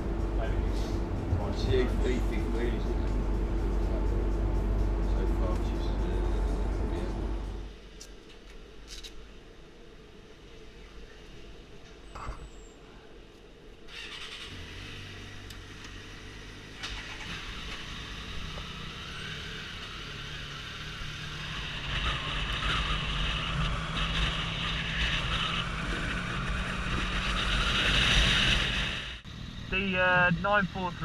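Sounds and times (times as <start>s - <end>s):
motorcycle engine accelerating: 14.0s - 29.7s.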